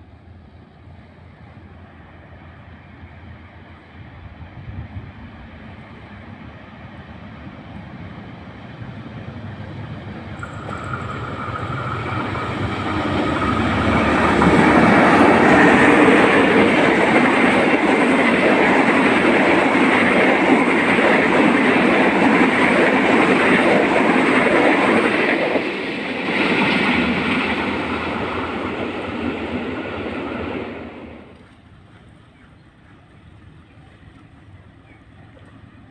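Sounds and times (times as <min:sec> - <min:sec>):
locomotive engine: 0:09.3 - 0:35.9
train wheels clattering on rail: 0:09.7 - 0:35.9.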